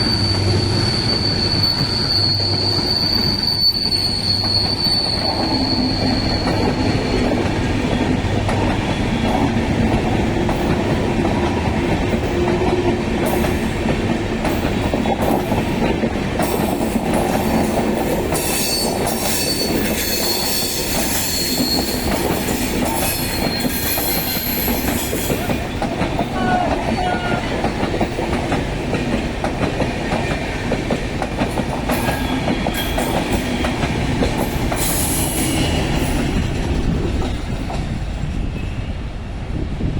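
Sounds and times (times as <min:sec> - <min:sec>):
high-pitched wheel squeal: 0:00.0 - 0:07.3, 0:18.4 - 0:22.3, 0:22.9 - 0:25.4
train coaches rumbling: 0:00.0 - 0:39.9
wheels clacking over rail joints: 0:04.4 - 0:38.4.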